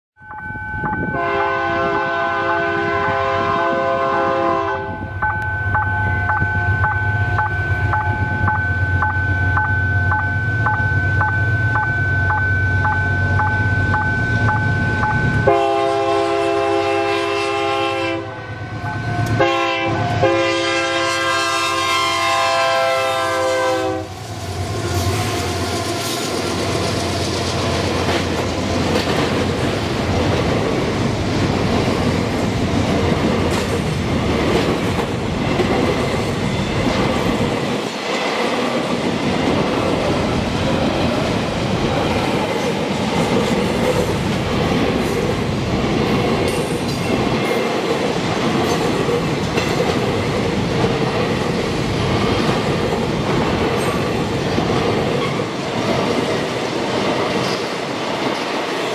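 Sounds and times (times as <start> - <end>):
train wheels rumbling on rails: 0.3 - 58.9
locomotive horn blasts: 1.0 - 5.1, 15.4 - 24.2
pulsing crossing warning tone: 4.9 - 15.9, 18.6 - 19.6.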